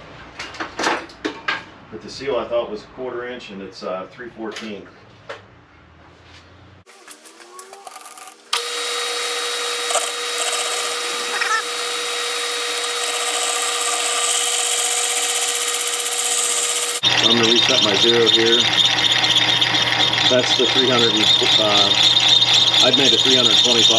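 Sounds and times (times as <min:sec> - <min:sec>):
machine motor whining: 0:06.9 - 0:23.9.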